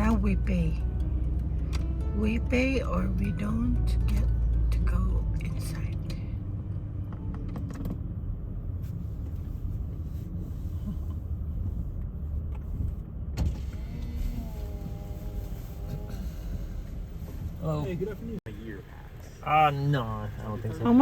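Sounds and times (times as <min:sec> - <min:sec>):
car rolling rumble inside cabin: 0:00.0 - 0:21.0
power window motor whine: 0:13.4 - 0:16.3.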